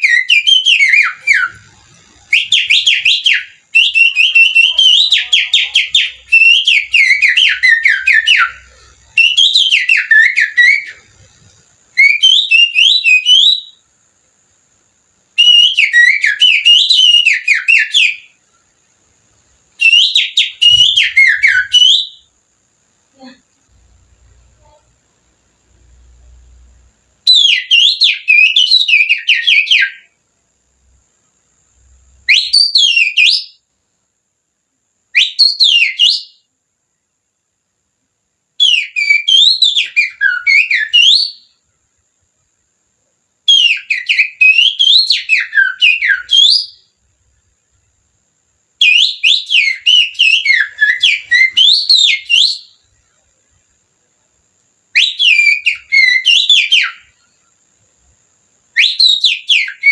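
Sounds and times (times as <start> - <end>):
finger whistling bird song: 0.0 - 11.3, 12.0 - 13.8, 15.4 - 18.4, 19.8 - 22.3, 27.3 - 30.1, 32.3 - 33.6, 35.2 - 36.4, 38.6 - 41.6, 43.5 - 46.9, 48.8 - 52.8, 55.0 - 57.2, 58.8 - 59.9.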